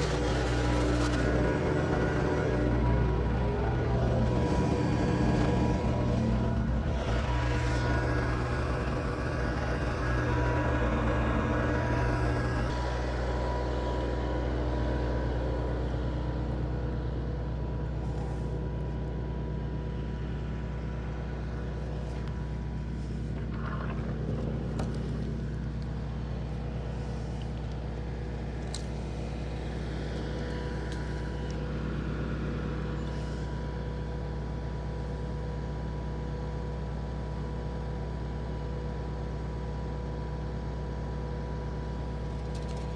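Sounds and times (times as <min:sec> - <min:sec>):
wood chipper chipping branch: 0:00.0 - 0:12.7, 0:21.4 - 0:33.5
tractor engine running: 0:00.0 - 0:36.1.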